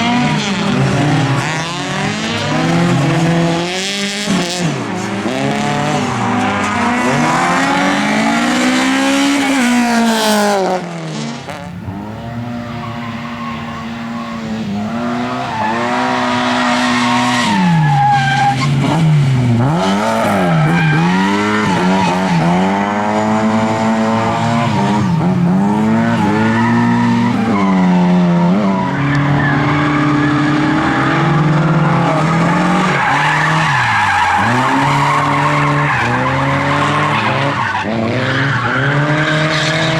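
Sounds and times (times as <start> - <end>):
race car engines revving: 0.0 - 39.9
tyre squeal: 12.0 - 18.8, 24.2 - 39.0.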